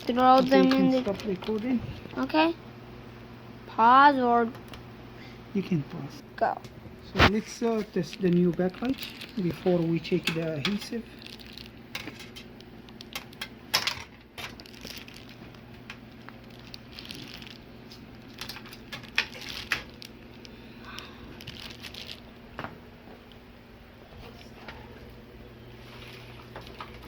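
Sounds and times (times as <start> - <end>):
plastic crinkling and rustling: 0.0 - 2.3, 7.2 - 23.4, 25.8 - 27.0
faint low hum: 0.0 - 27.0.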